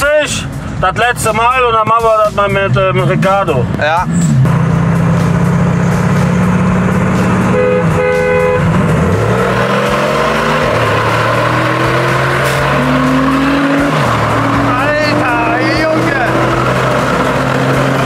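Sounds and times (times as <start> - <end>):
car engine revving: 0.0 - 18.0
car horn honks: 7.4 - 9.2.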